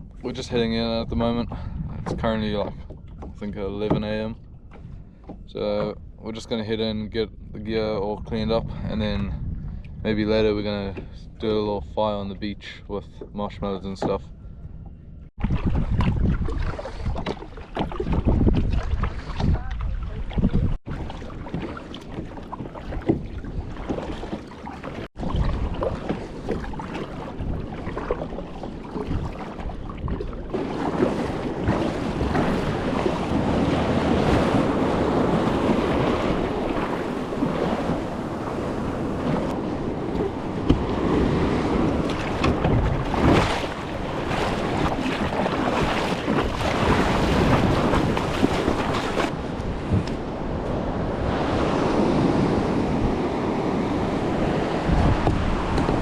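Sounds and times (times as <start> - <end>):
water splashing around kayak: 0.0 - 6.0, 15.3 - 56.0
wind buffeting microphone: 0.0 - 56.0
surf waves washing: 18.8 - 56.0.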